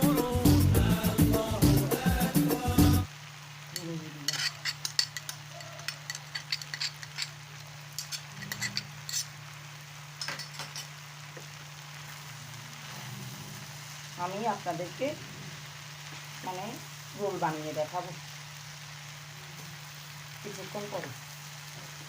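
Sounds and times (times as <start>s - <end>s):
utensil clinking and scraping pan: 4.3s - 9.4s, 10.2s - 10.9s.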